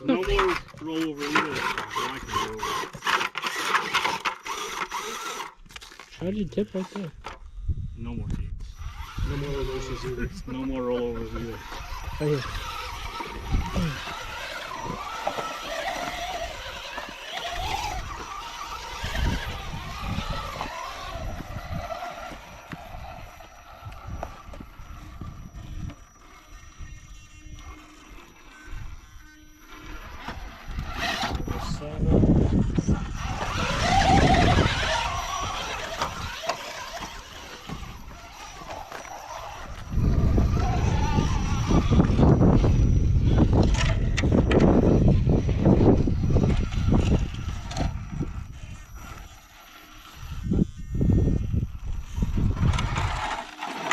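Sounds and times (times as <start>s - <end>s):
electric motor whining: 0.0s - 53.9s
wind buffeting microphone: 7.5s - 27.0s, 30.0s - 49.4s, 50.0s - 53.4s
buggy engine at low throttle: 8.8s - 25.9s, 30.4s - 49.3s.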